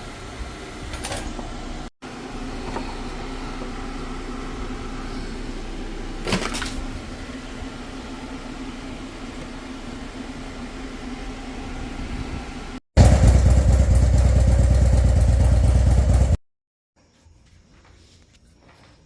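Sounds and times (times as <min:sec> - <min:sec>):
machine hum with steady tone: 0:00.0 - 0:12.8.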